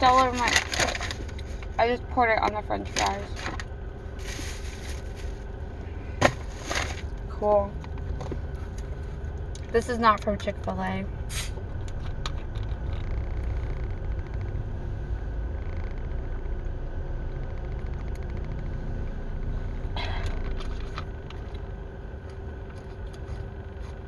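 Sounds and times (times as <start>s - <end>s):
car idling: 0.0s - 24.0s
faint constant hum: 0.0s - 24.0s
noisy rustle: 2.9s - 5.5s.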